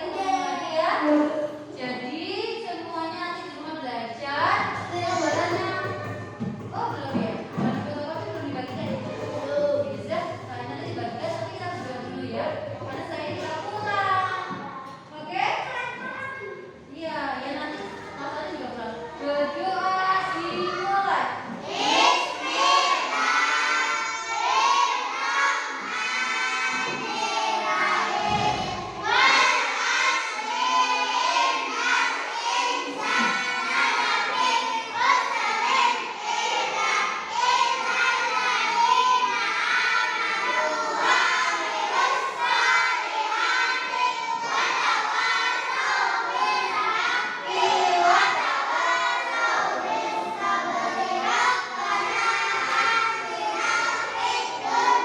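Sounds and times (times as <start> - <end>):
children singing in unison: 21.4 - 55.0
low thump: 28.2 - 29.0.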